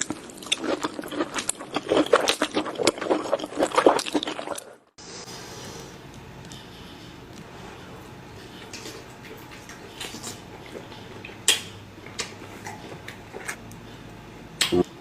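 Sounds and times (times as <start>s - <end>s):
wet chewing smacks: 8.4s - 13.8s.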